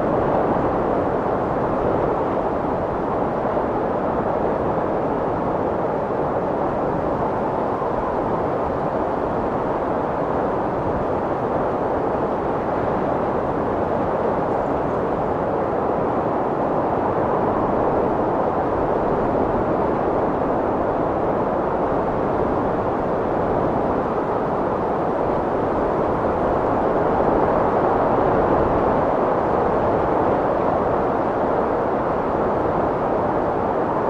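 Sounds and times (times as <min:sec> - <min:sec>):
strong wind blowing: 0:00.0 - 0:34.0.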